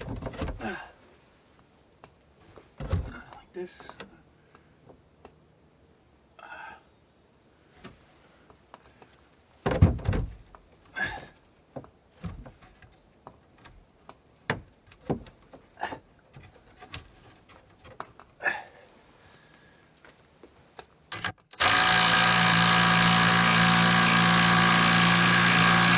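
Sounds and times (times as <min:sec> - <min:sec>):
wooden knocks and thuds: 0:00.0 - 0:00.6, 0:02.5 - 0:03.3, 0:09.6 - 0:10.6, 0:11.8 - 0:12.9, 0:14.5 - 0:18.2.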